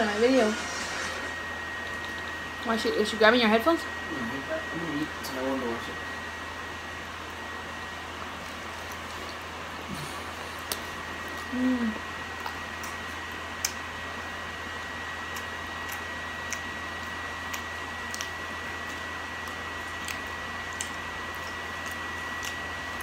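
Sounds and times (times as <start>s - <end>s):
thin high whine: 0.0s - 15.2s
person chewing: 8.4s - 11.6s, 12.2s - 14.0s, 14.8s - 23.0s
wet mouth clicks and smacks: 10.6s - 10.9s, 15.3s - 22.7s.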